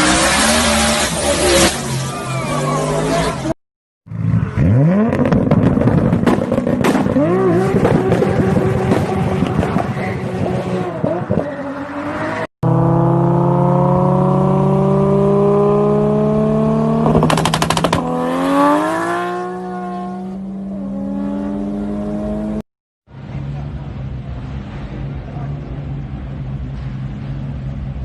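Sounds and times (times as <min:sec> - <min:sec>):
car engine revving: 0:00.0 - 0:22.6
rapid exhaust popping: 0:17.0 - 0:18.2.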